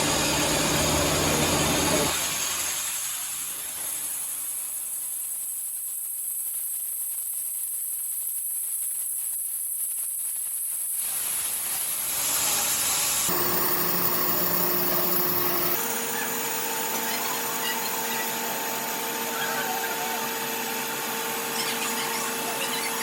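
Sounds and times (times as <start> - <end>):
machine running with hum: 0.0 - 2.2, 13.3 - 15.8
machine hiss with rapid ticking: 3.6 - 11.8, 13.3 - 15.8.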